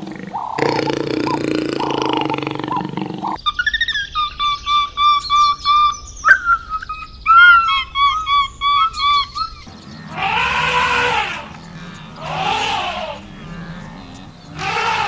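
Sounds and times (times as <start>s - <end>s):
animal chirping: 0.0s - 15.0s
harsh animal call: 0.0s - 15.0s.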